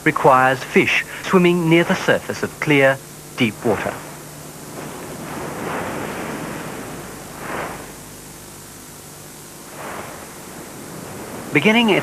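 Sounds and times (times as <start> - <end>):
surf washing on shore: 3.4 - 12.0.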